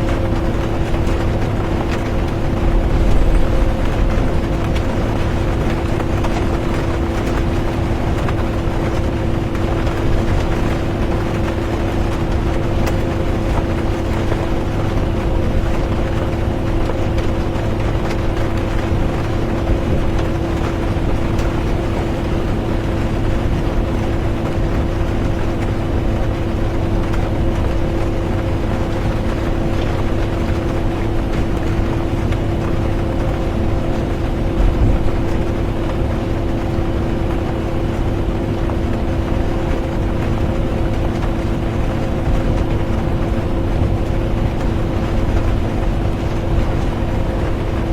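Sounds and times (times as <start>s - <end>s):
bus engine and road drone: 0.0s - 17.3s.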